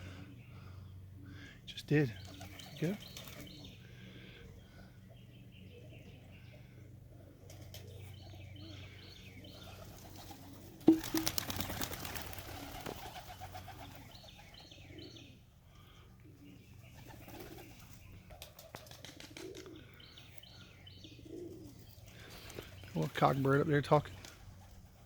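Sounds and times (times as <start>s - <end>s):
pigeons cooing: 0.0s - 25.0s
pigeon wingbeats: 2.2s - 3.6s, 9.6s - 14.5s, 17.0s - 19.8s, 24.1s - 25.0s.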